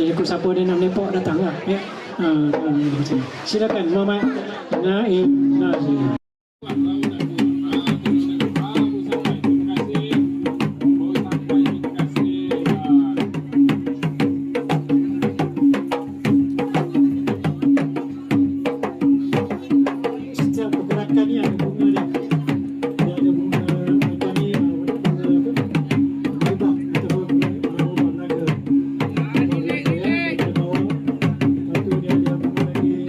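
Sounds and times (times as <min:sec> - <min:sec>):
fast hand-drum strokes: 0:00.0 - 0:33.0.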